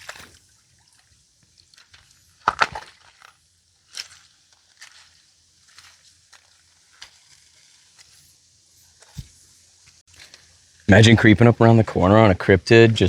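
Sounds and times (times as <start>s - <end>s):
footsteps on rocks and gravel: 1.6s - 10.5s.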